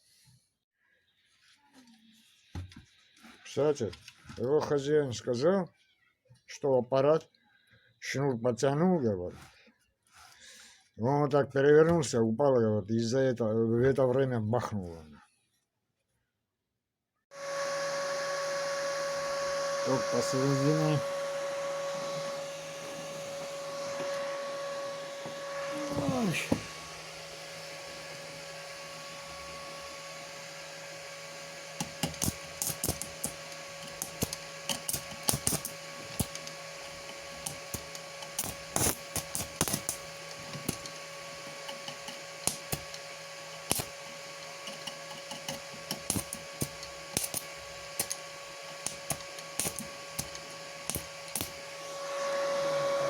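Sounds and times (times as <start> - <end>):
welding inverter humming: 17.4 - 53.0
welding arc crackling: 19.2 - 21.4, 25.7 - 26.9, 31.6 - 51.8.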